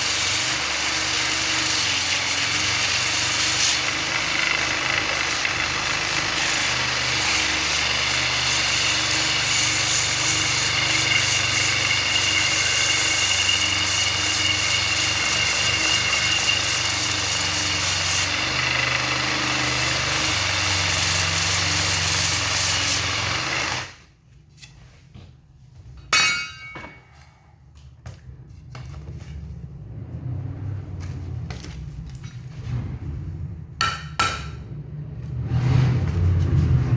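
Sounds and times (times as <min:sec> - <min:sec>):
power tool running: 0:00.0 - 0:24.0.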